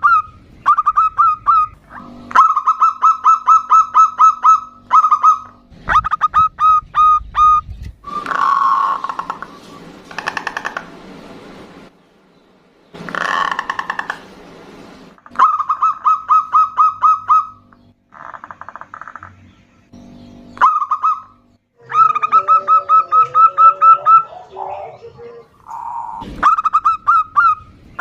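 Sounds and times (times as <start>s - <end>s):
doves cooing: 0.0s - 11.1s, 13.0s - 14.3s, 20.6s - 28.0s.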